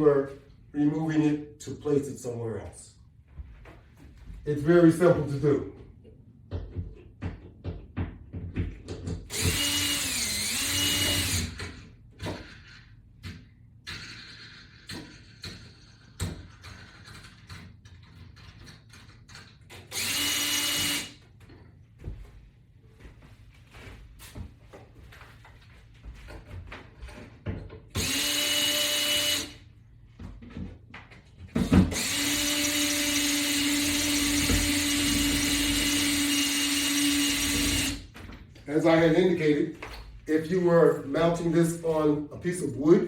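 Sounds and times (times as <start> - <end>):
power drill running: 9.3 - 11.8, 19.9 - 21.2, 27.9 - 29.6, 31.8 - 38.1.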